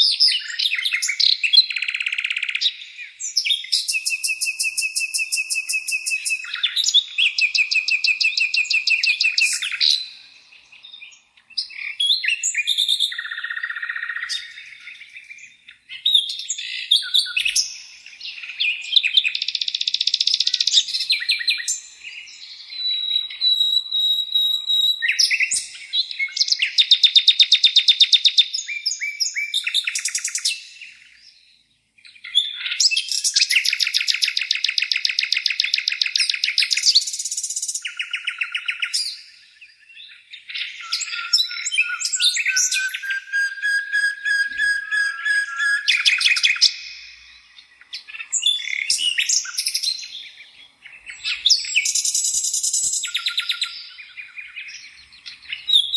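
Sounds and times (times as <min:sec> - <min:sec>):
songbirds singing: 0:00.0 - 0:55.9.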